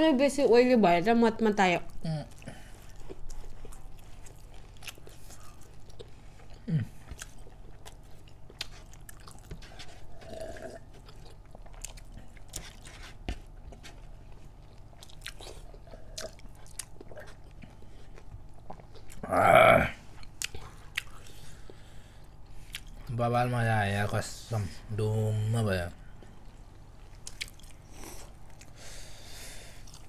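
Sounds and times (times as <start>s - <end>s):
chewing food: 1.8s - 19.3s, 20.1s - 23.1s, 26.0s - 28.9s, 29.6s - 30.0s.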